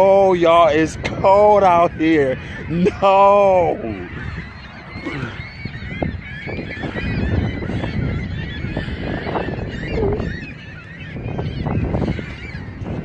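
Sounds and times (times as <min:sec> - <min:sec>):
flock of birds calling: 0:00.0 - 0:13.0
wind rumble on microphone: 0:00.0 - 0:13.0.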